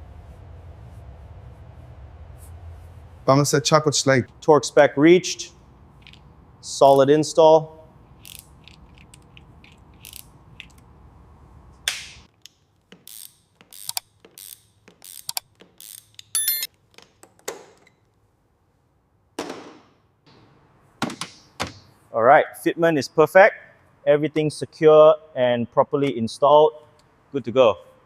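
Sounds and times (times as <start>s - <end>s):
low hum: 0.0s - 6.6s
ratchet rattle: 8.2s - 10.7s.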